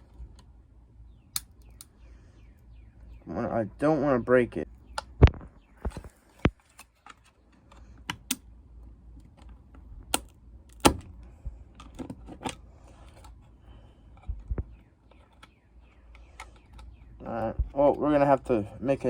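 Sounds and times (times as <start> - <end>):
plastic parts clicking and snapping: 1.3 - 1.9, 4.9 - 8.5, 9.1 - 13.5, 14.1 - 18.5.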